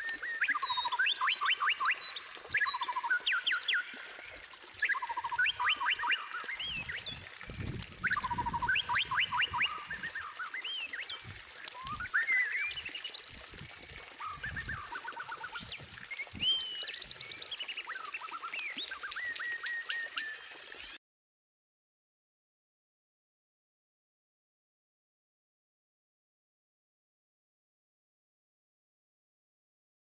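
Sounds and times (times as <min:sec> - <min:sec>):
bird singing varied song: 0:00.0 - 0:07.3, 0:08.0 - 0:13.4, 0:14.2 - 0:21.0.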